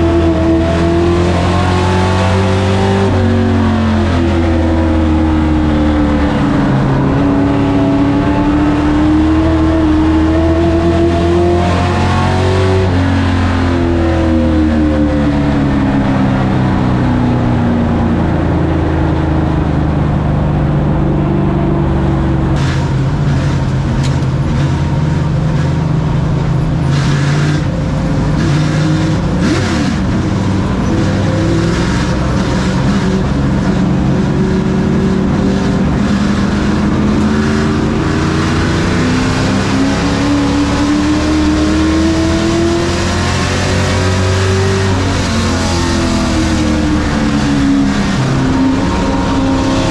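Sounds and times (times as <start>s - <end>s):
truck engine revving: 0.0s - 49.9s.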